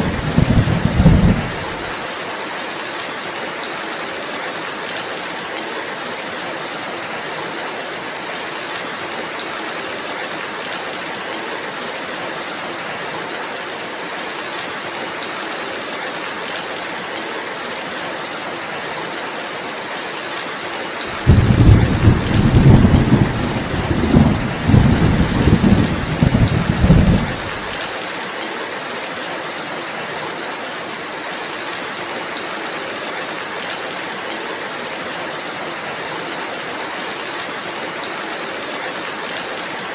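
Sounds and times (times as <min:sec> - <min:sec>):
thunder rumbling: 0:00.0 - 0:01.9, 0:21.1 - 0:27.7
steady rainfall: 0:00.0 - 0:39.9.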